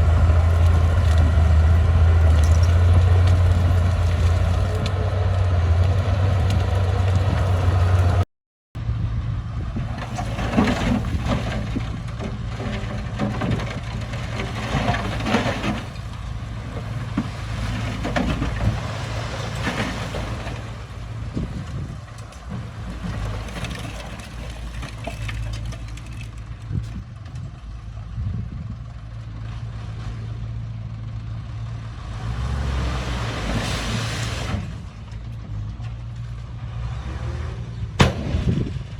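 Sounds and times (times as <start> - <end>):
clanks and crunches of soil: 0.0 - 8.2, 9.8 - 30.3
diesel engine running: 0.0 - 32.2.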